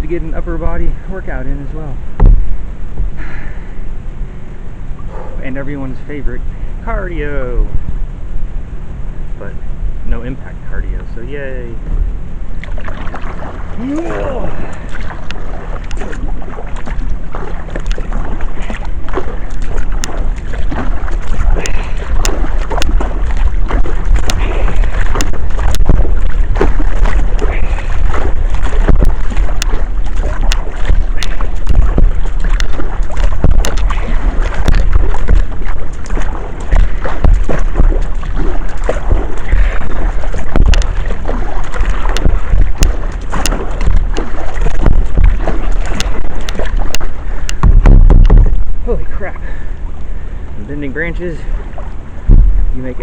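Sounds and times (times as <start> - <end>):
wind rumble on microphone: 0.0 - 53.0
water drips and knocks: 2.2 - 2.6, 12.6 - 48.8, 52.2 - 52.7
paddle splashing in water: 12.5 - 53.0.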